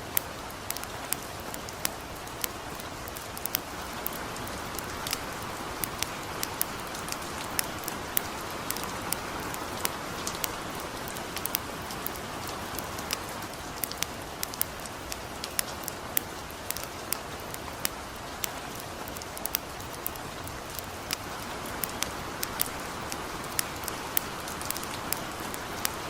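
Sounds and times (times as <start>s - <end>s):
campfire crackling and popping: 0.0s - 26.0s
light rain falling: 0.0s - 26.0s.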